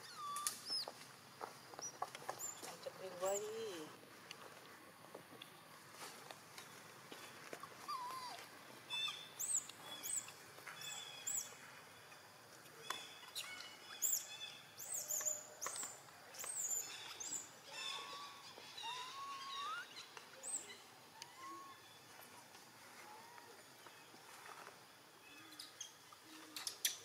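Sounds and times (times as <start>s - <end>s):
birds chirping: 6.6s - 22.2s
thin wavering bird calls: 12.8s - 22.1s.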